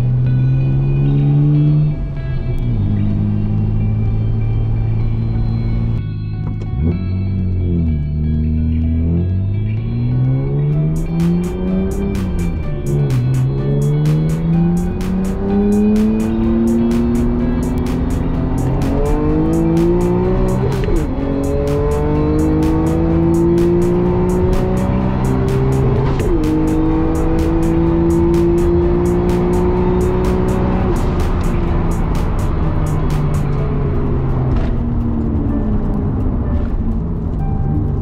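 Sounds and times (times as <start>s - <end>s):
background music: 0.0s - 38.0s
car engine accelerating: 0.0s - 38.0s.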